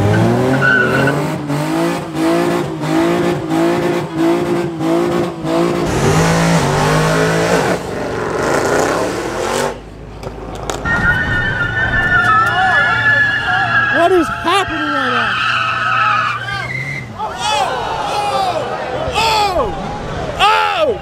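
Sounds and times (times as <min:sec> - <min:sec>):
car engine revving hard: 0:00.0 - 0:09.8
tires squealing: 0:00.0 - 0:09.8, 0:10.4 - 0:21.0.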